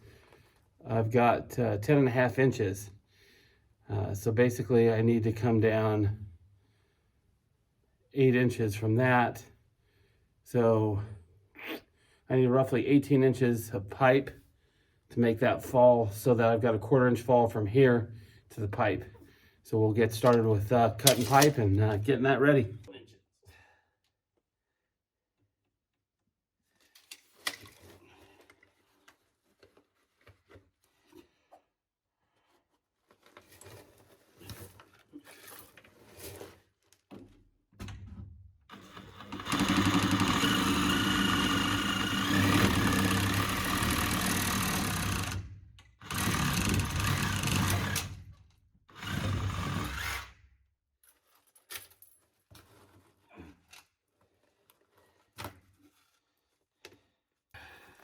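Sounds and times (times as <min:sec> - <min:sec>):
pipe and tools clattering: 0:20.2 - 0:21.6
power saw cutting plastic pipe: 0:21.0 - 0:21.6, 0:38.7 - 0:48.3, 0:48.9 - 0:50.4.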